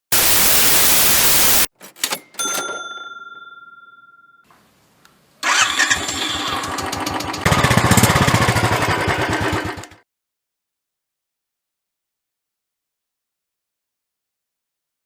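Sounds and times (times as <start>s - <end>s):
motorcycle engine starting and running: 5.4s - 10.0s.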